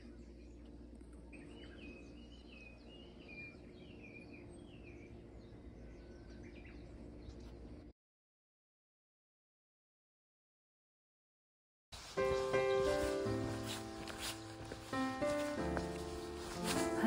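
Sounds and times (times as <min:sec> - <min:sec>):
songbird chirping: 0:00.0 - 0:07.9, 0:12.0 - 0:17.0
steady low hum: 0:00.0 - 0:07.9.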